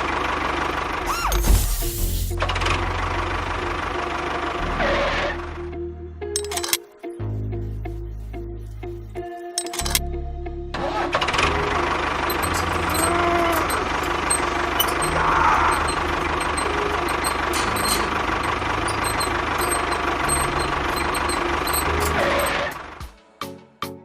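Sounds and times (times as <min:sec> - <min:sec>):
engine chugging: 0:00.0 - 0:05.4, 0:11.0 - 0:23.0.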